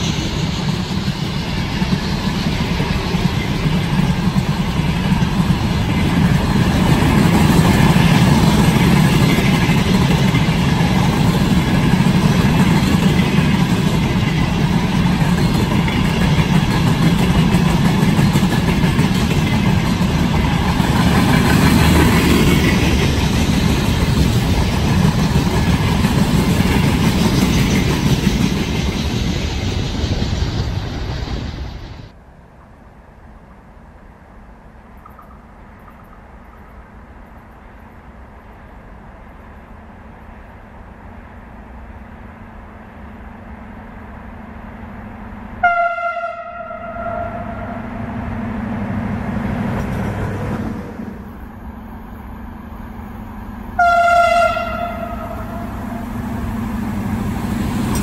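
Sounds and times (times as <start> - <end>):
train wheels rumbling on rails: 0.0 - 32.8, 34.6 - 58.0.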